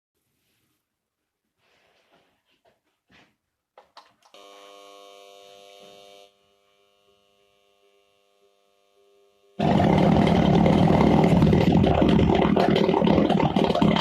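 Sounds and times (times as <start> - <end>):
electrical buzz: 4.3 - 14.0
engine roaring rush: 9.6 - 14.0.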